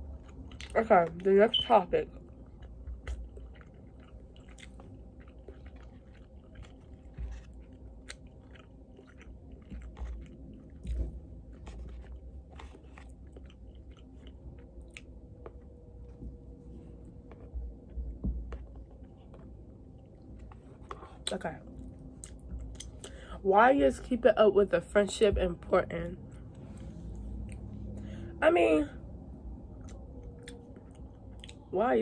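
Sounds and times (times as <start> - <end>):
person chewing: 0.0 - 0.8, 2.1 - 16.3, 17.0 - 23.2, 29.7 - 31.7.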